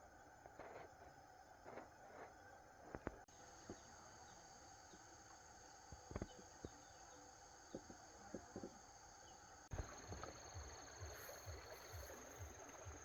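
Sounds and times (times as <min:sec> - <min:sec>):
high-pitched insect drone: 0:09.8 - 0:13.0.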